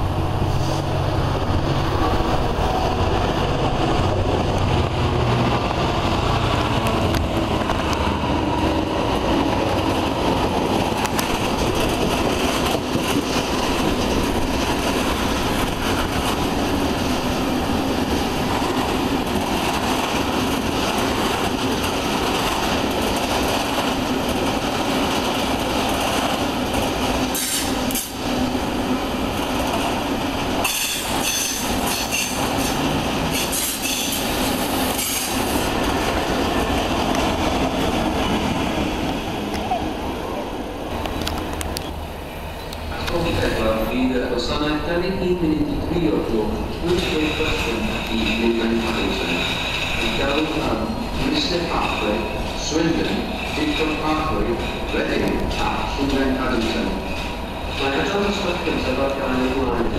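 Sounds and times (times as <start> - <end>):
diesel locomotive engine: 0.0 - 59.9
wheels rumbling and clattering on rail: 0.0 - 59.9.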